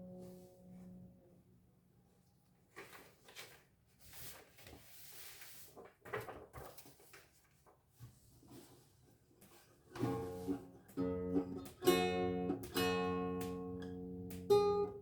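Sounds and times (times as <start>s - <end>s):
faint handling rustles: 2.4s - 10.8s.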